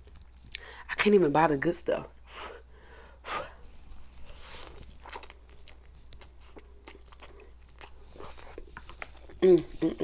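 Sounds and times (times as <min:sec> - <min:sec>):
chewing with wet smacks: 0:00.0 - 0:00.6, 0:04.2 - 0:09.4.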